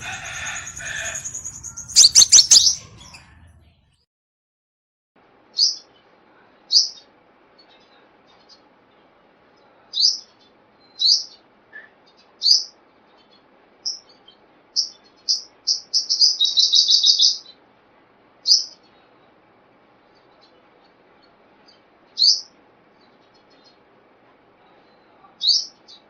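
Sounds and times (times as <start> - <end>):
sunbird chirping: 0.0 - 3.6.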